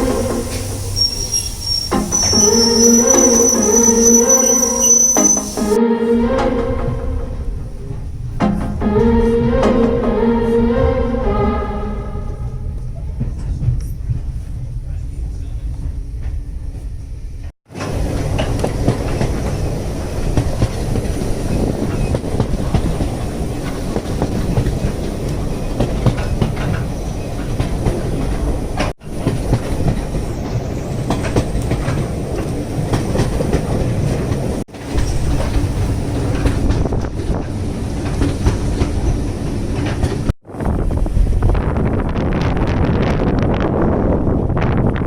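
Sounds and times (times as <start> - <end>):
train wheels clickety-clack: 0.0 - 3.6, 12.8 - 40.3.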